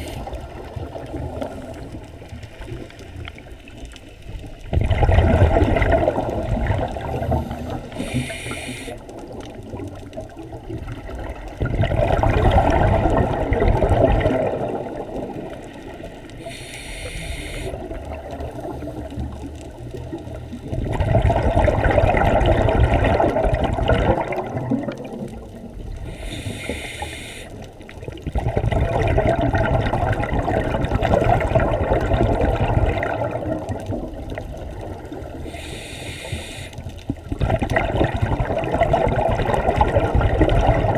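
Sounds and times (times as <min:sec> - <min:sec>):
regulator inhale hiss: 0:00.0 - 0:00.4, 0:07.3 - 0:09.1, 0:16.4 - 0:17.9, 0:26.0 - 0:27.7, 0:35.4 - 0:37.0
exhale bubbling rush: 0:00.0 - 0:03.0, 0:04.7 - 0:09.2, 0:10.8 - 0:19.5, 0:20.6 - 0:40.9.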